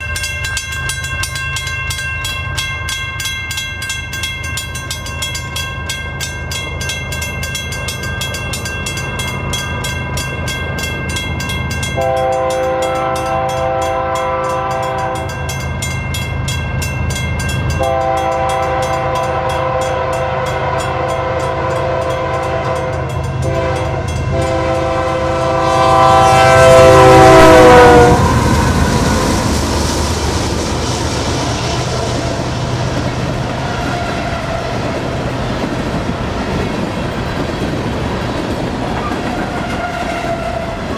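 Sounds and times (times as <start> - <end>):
crossing bell ringing: 0.0 - 40.9
diesel locomotive rumble: 6.7 - 40.9
locomotive horn blasts: 12.0 - 15.5, 17.8 - 29.6.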